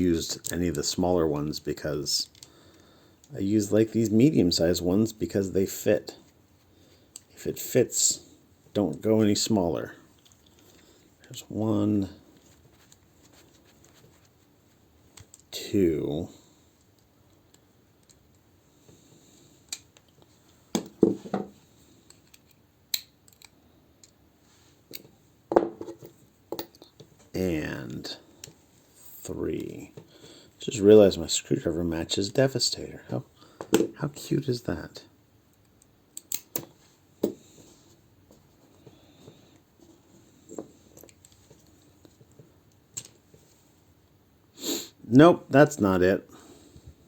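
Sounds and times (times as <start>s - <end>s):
plastic toy parts clicking: 22.1s - 24.2s.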